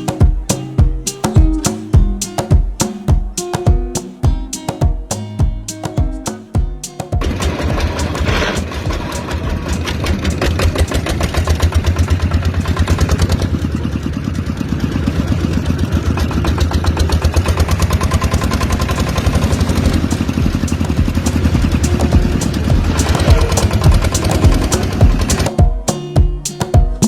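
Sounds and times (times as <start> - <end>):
small diesel engine chugging: 7.2 - 25.5.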